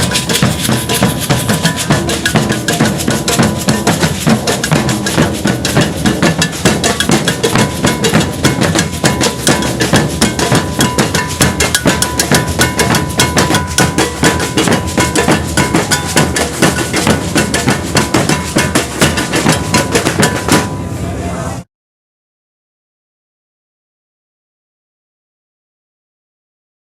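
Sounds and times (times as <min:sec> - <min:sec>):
percussion ensemble drums and bell: 0:00.0 - 0:21.0.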